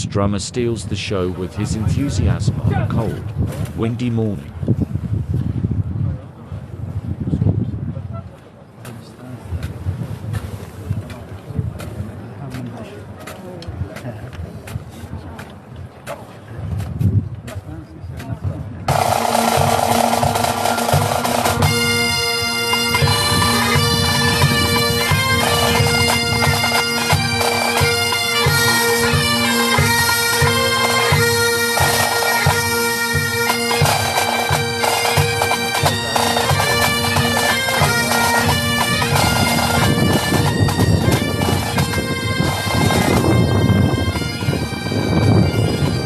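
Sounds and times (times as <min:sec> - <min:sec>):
steady drum beat: 0:18.2 - 0:46.0
bagpipe chanters playing marching tune: 0:18.9 - 0:46.0
bagpipe drones: 0:18.9 - 0:46.0.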